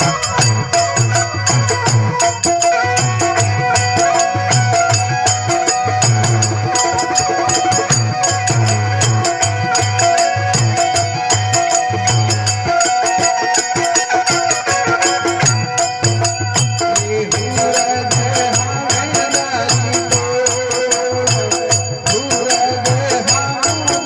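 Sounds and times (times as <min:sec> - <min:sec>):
jingling percussion: 0:00.0 - 0:24.0.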